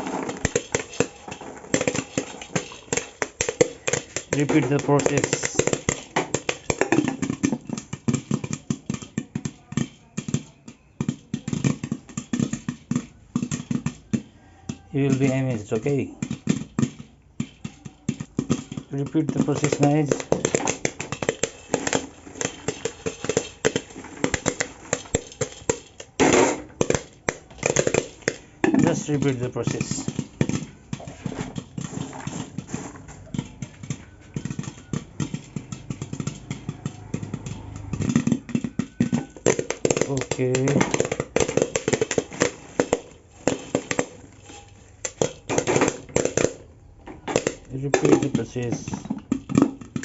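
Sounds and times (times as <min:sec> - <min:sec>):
popcorn popping: 0:00.0 - 0:50.0.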